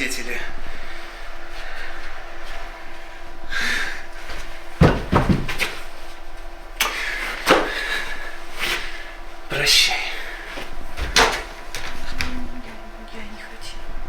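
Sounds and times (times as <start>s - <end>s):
sharp thumps and knocks: 4.8s - 5.8s.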